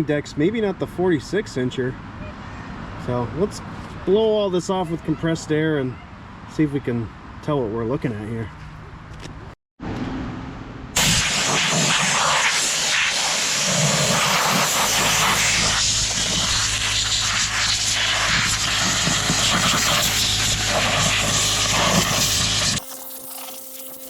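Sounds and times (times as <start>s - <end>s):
compressed air blow gun hissing: 11.0s - 24.0s.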